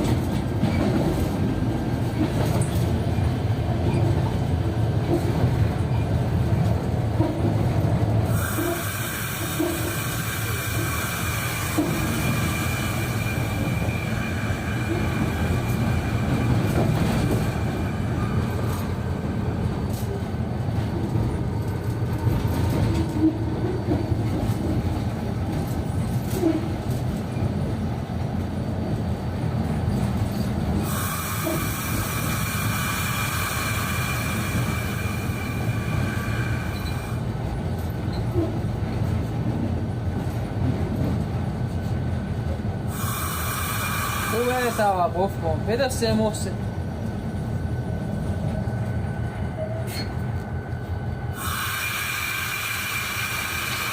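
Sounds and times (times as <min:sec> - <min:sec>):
train wheels rumbling: 0:00.0 - 0:53.9
high wheel squeal: 0:08.3 - 0:18.9, 0:30.4 - 0:37.2, 0:49.6 - 0:50.2.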